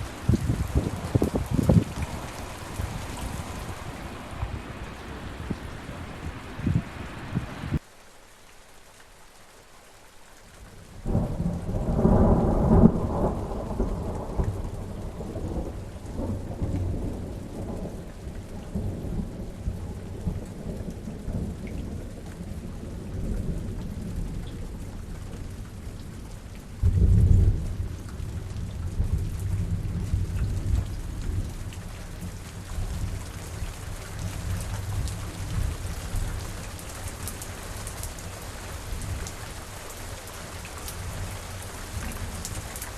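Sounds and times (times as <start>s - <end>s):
thunder rumbling: 0.0s - 7.8s
steady rain falling: 0.0s - 42.9s.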